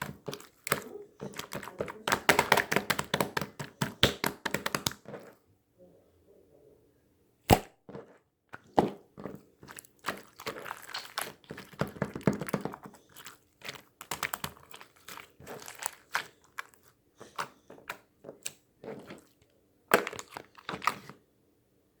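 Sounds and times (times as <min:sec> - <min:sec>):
sharp crack: 0:07.5 - 0:07.8.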